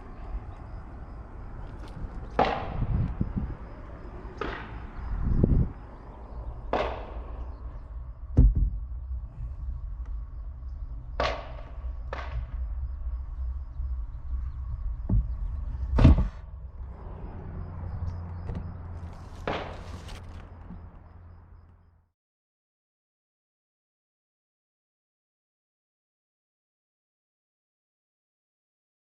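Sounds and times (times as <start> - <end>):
handling rumble: 0.0 - 21.9
low bumps: 0.0 - 22.0.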